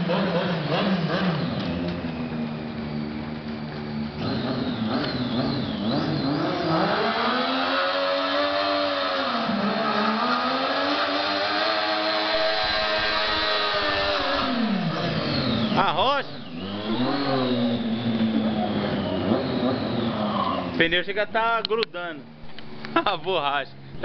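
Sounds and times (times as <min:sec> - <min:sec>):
motorcycle engine revving hard: 0:00.0 - 0:21.6.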